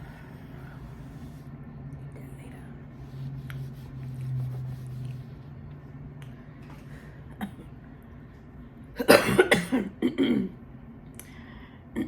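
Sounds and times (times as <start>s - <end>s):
person coughing: 9.0s - 10.6s.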